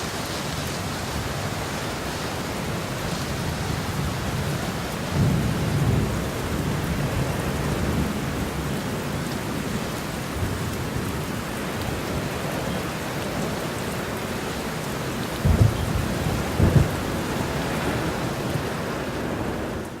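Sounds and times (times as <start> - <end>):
steady rain falling: 0.0 - 20.0
low booms of thunder: 15.4 - 18.3.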